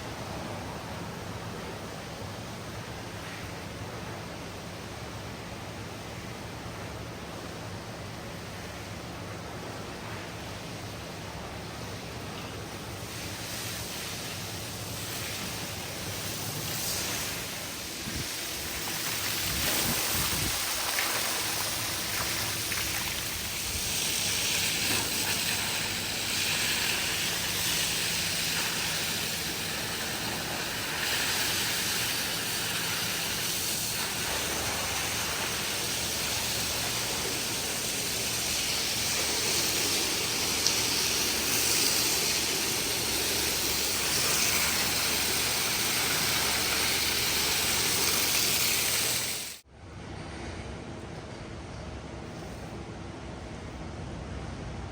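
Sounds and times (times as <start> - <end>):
pressure washer spraying: 13.0 - 49.6.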